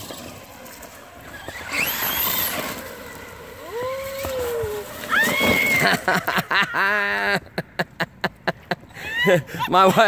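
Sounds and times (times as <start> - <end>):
electric motor whining: 0.0 - 6.1.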